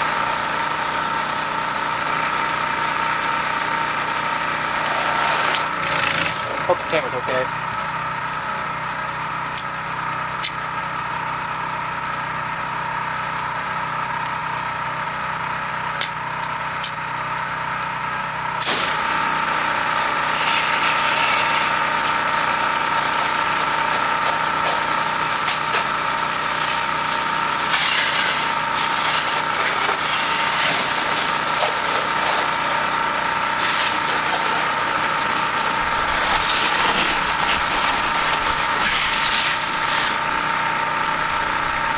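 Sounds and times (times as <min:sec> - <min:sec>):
pressure washer humming: 0:00.0 - 0:41.9
water jet hissing: 0:18.6 - 0:40.3.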